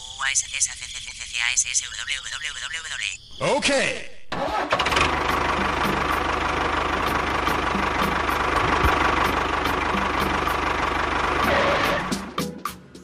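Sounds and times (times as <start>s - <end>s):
engine idling: 4.4s - 12.4s.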